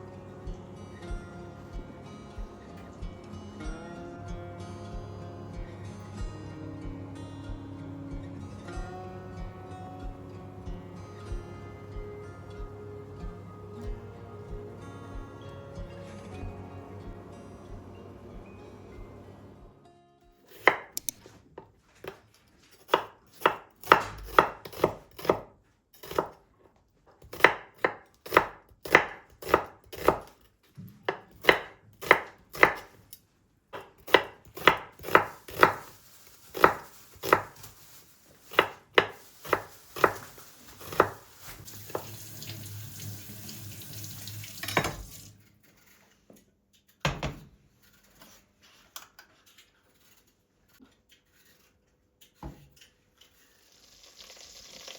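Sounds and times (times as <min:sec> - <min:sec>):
knife chopping on cutting board: 0:20.5 - 0:21.2, 0:22.8 - 0:26.4, 0:27.2 - 0:30.4, 0:31.0 - 0:33.0, 0:33.8 - 0:35.9, 0:36.5 - 0:37.7, 0:38.5 - 0:42.2.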